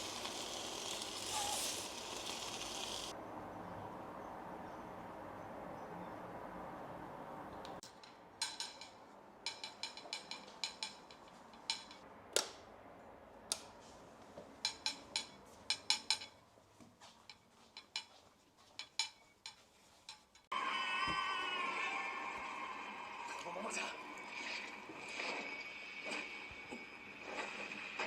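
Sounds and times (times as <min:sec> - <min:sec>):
small hard objects clicking: 0:00.0 - 0:03.1.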